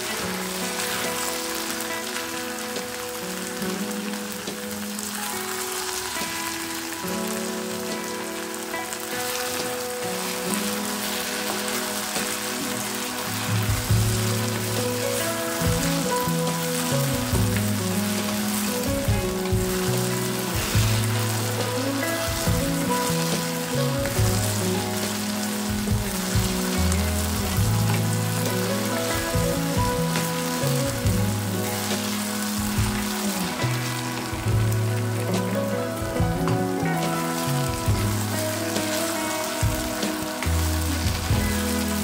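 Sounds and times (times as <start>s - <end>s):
background music with low notes: 0.0s - 42.0s
okra sizzling in a pan: 0.0s - 42.0s
wooden spatula scraping and stirring: 8.9s - 42.0s.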